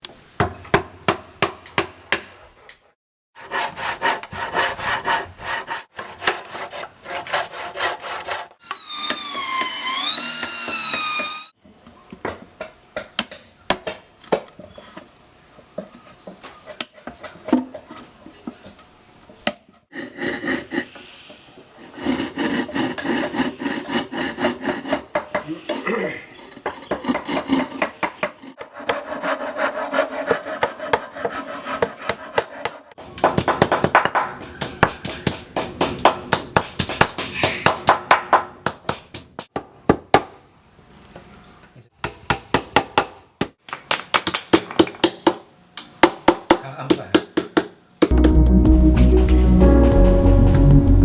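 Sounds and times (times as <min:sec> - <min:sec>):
saw cutting wood: 0:03.4 - 0:11.6, 0:19.9 - 0:25.8, 0:26.4 - 0:33.0.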